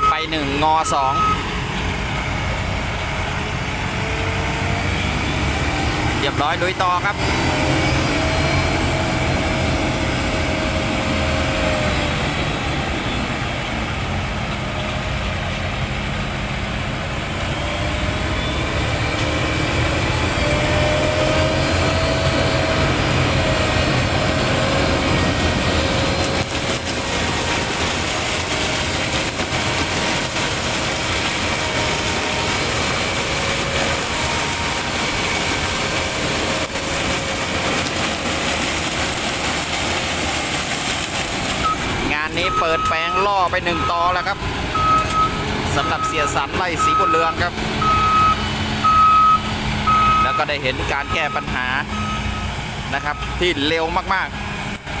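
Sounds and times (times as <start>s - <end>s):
diesel machine running under load: 0.0s - 55.0s.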